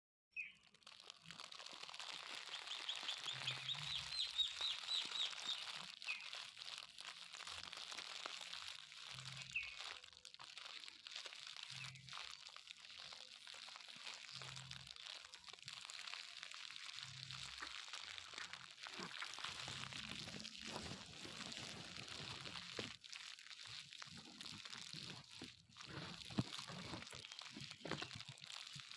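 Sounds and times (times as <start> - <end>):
crackling clicks: 0.5 - 28.9
birds chirping: 2.5 - 6.3.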